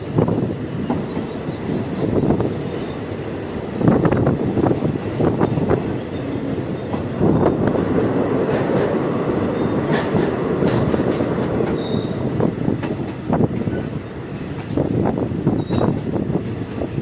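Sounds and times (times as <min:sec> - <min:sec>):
train wheels rumbling on rail: 0:00.0 - 0:17.0
wheels clacking over rail joints: 0:00.1 - 0:17.0.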